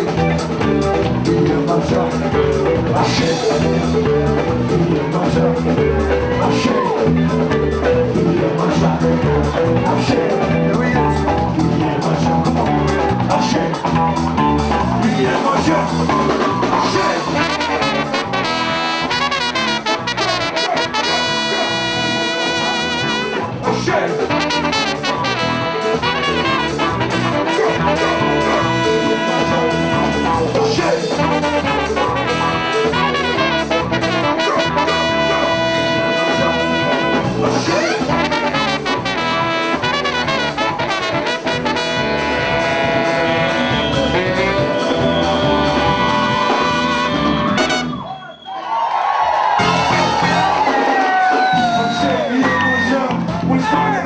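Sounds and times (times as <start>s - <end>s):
driving percussion: 0.0s - 48.0s, 49.6s - 54.0s
horns playing: 16.9s - 48.3s, 49.6s - 50.7s.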